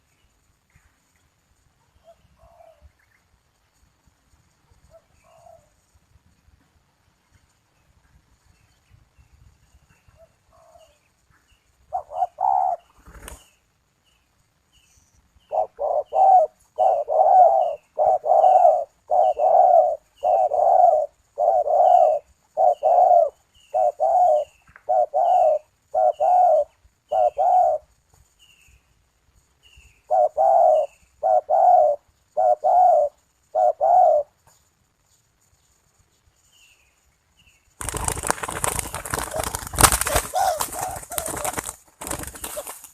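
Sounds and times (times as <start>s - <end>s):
dove cooing: 2.0s - 2.9s, 4.9s - 5.8s, 10.1s - 11.0s, 11.9s - 13.4s, 15.5s - 28.0s, 30.0s - 34.4s, 38.9s - 42.8s
small bird chirping: 7.2s - 41.6s.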